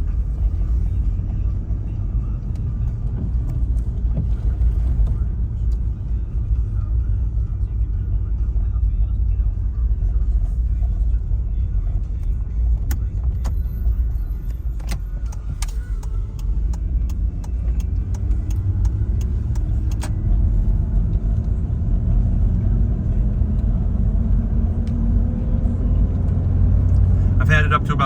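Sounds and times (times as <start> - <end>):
engine and road rumble: 0.0 - 28.0
sharp clicks: 14.8 - 20.2.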